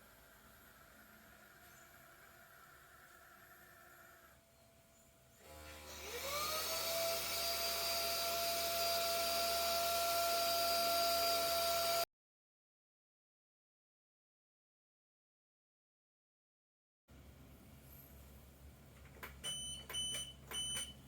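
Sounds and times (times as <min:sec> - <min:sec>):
vacuum cleaner motor whining: 0:05.4 - 0:12.0.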